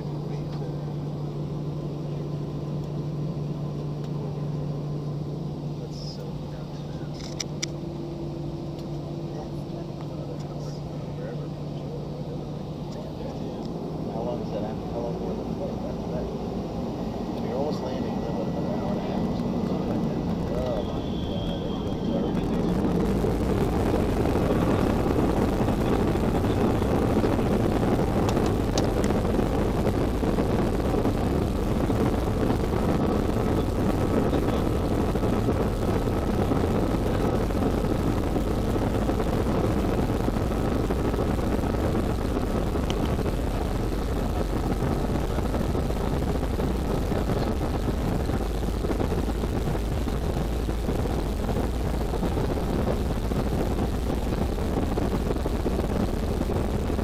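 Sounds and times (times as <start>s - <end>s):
faint high whine: 0.0s - 57.0s
jet engine and airflow noise: 0.0s - 57.0s.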